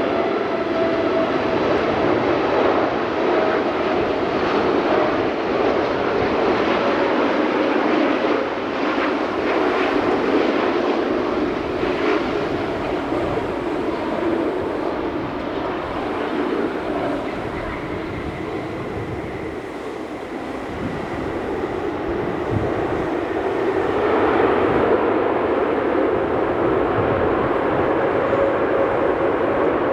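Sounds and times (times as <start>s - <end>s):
jet engine roar: 0.0s - 29.9s
faint high whine: 8.4s - 24.5s.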